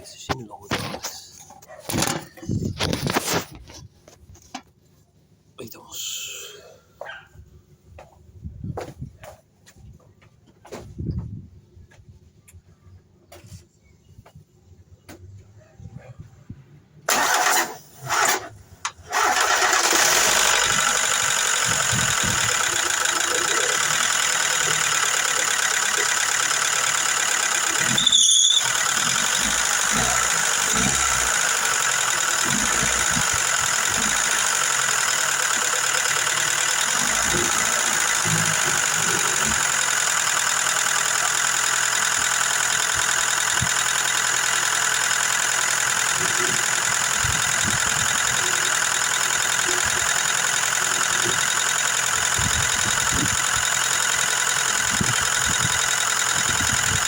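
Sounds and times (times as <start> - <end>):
car engine idling: 17.1 - 57.0
car starter cranking: 17.1 - 57.0.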